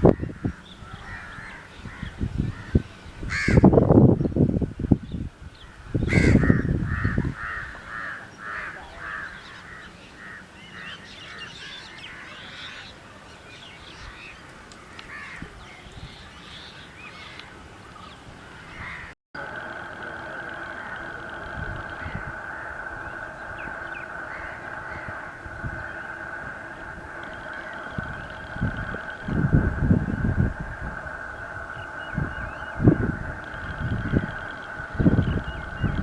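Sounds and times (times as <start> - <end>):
crows cawing: 0.0 - 3.8, 5.6 - 12.9, 13.9 - 15.5, 18.7 - 35.9
loud low rumbles: 19.4 - 36.0.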